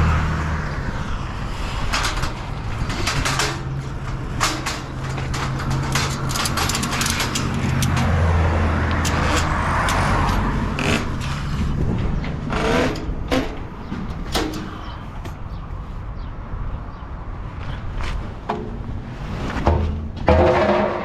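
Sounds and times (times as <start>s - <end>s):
sharp clicks and rattles: 1.8s - 15.6s.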